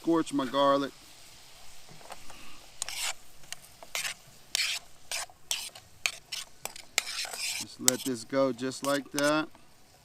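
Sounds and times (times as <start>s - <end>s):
food sizzling in a pan: 0.0s - 10.0s
utensil scraping a pan: 2.0s - 9.5s.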